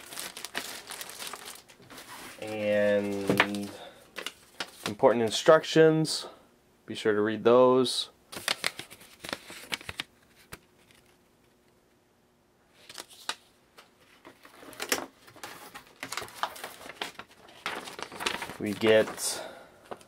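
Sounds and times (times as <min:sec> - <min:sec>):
paper leaflets rustling: 0:00.0 - 0:05.4, 0:08.3 - 0:11.2, 0:12.8 - 0:20.0.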